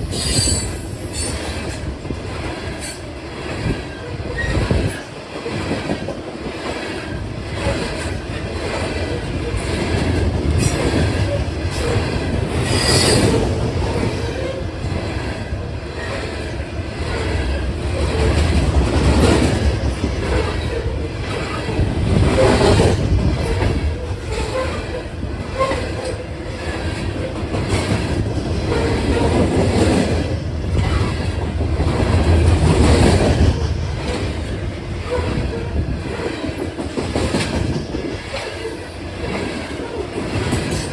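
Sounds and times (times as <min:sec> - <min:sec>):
wheel squeal: 0:00.0 - 0:01.4, 0:12.6 - 0:13.4
train rumbling past: 0:00.0 - 0:40.9.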